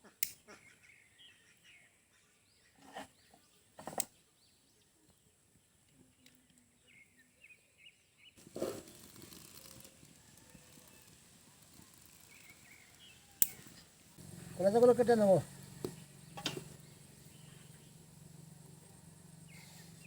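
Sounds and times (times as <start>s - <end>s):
steady hiss: 8.4s - 20.0s
faint bird chirps: 10.2s - 20.0s.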